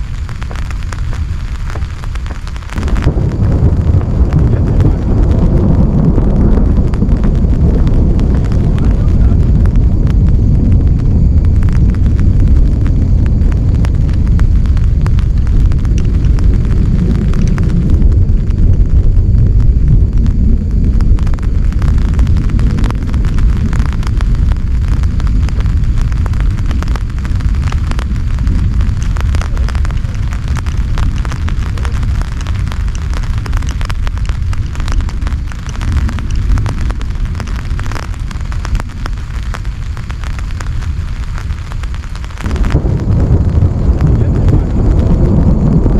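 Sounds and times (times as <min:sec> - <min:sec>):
heavy rain drumming on a tent: 0:00.0 - 0:45.9.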